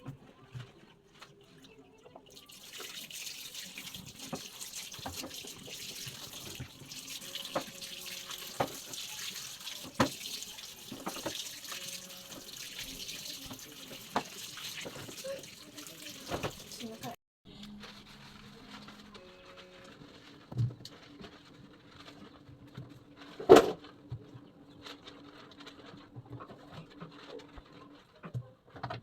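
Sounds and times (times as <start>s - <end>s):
tap water running into sink: 2.3s - 17.2s.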